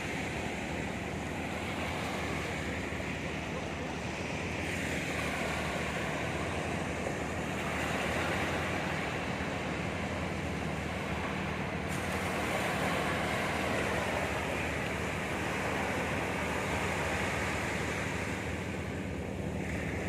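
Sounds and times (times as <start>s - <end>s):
sea waves washing in: 0.0s - 20.0s.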